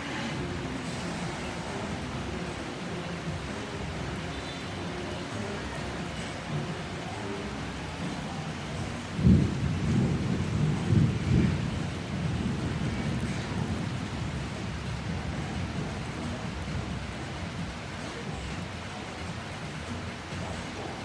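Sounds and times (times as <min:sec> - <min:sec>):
heavy rain: 0:00.0 - 0:21.0
thunder rumbling: 0:08.5 - 0:18.7.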